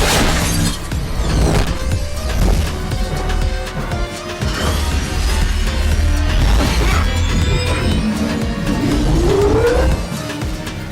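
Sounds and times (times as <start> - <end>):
crash and impact effects: 0.0 - 3.0
dramatic orchestral score: 0.0 - 10.9
heavy low rumble: 0.8 - 4.1, 4.8 - 10.1.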